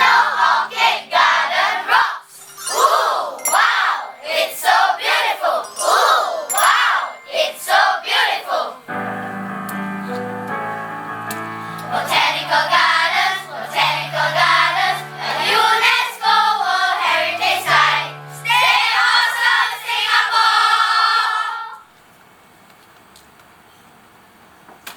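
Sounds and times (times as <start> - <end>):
children's choir singing: 0.0 - 9.2, 11.8 - 21.9
low keyboard notes: 8.8 - 19.0.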